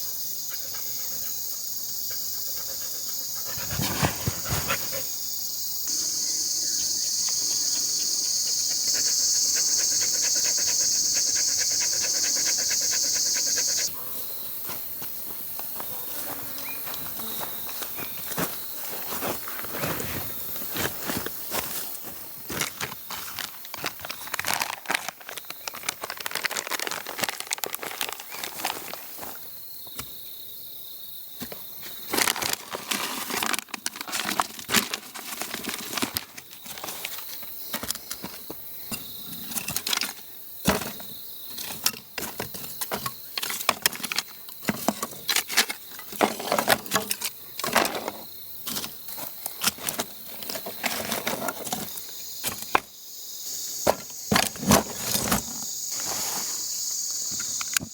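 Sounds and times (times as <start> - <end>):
insect chirring: 0.0 - 18.7, 23.0 - 31.3, 46.9 - 57.9.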